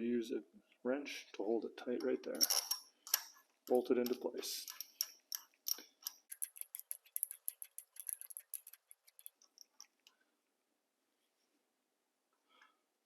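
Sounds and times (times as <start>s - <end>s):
ratchet wrench clicking: 4.6s - 8.8s.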